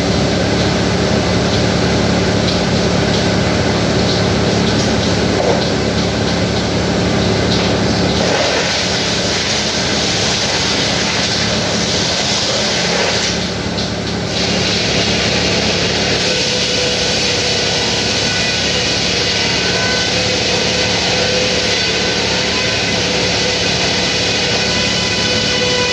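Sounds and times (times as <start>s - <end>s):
low engine hum: 0.0s - 16.5s
sawmill machinery drone: 0.0s - 25.9s.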